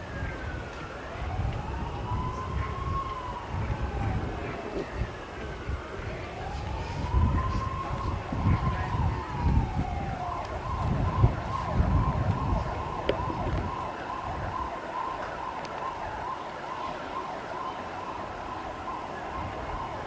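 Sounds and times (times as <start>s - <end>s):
siren-like tone: 0.0s - 20.0s
low rumbles: 0.1s - 14.7s.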